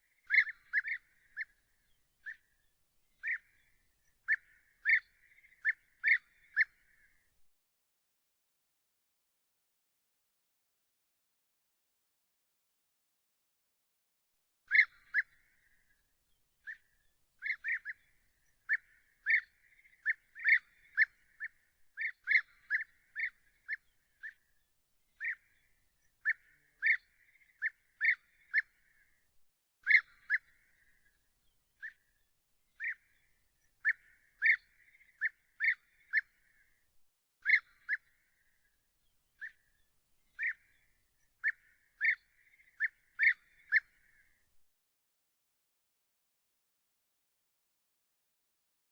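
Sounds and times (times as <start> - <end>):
bird calling with sharp notes: 32.8 - 36.6.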